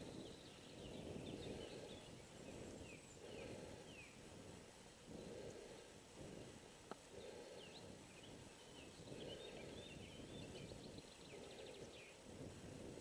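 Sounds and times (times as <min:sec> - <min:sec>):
faint bird chirps: 0:00.0 - 0:04.3, 0:07.1 - 0:12.3
low steady background noise: 0:00.0 - 0:13.0.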